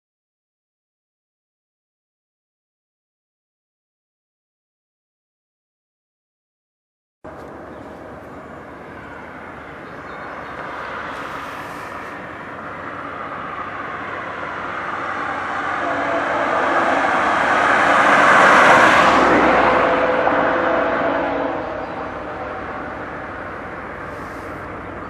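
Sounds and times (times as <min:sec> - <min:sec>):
diesel locomotives passing: 0:07.3 - 0:25.0.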